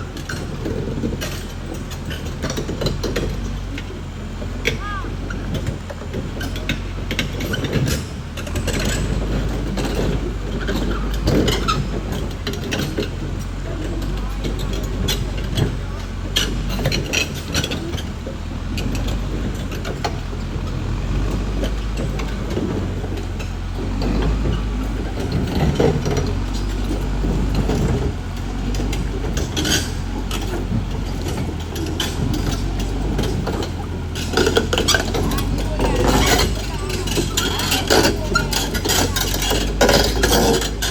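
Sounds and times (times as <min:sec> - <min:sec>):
bulldozer diesel engine running: 0:00.0 - 0:40.9
steel tracks clanking: 0:00.0 - 0:40.9.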